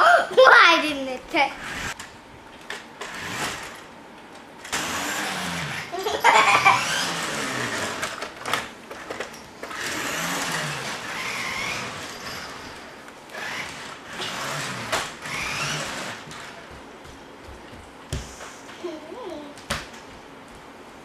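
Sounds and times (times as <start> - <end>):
small electric motor whirring: 4.7 - 5.9, 6.5 - 8.2, 9.6 - 16.5.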